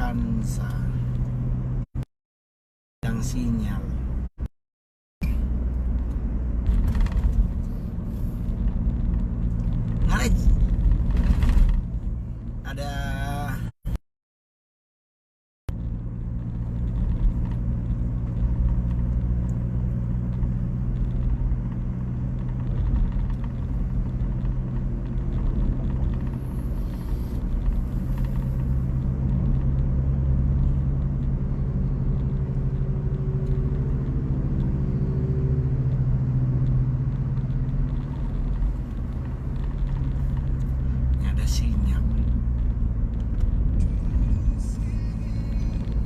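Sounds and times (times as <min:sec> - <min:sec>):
car engine and road rumble: 0:00.0 - 0:02.1, 0:03.0 - 0:04.5, 0:05.2 - 0:14.0, 0:15.7 - 0:46.0.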